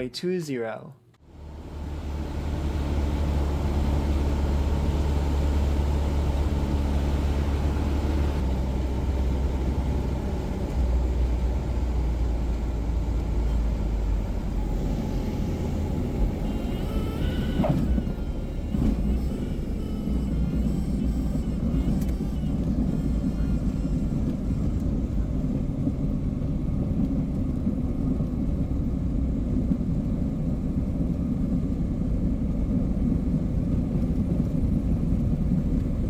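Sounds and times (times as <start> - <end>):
airplane engine drone: 1.3 - 36.0
short falling squeal: 16.3 - 24.3.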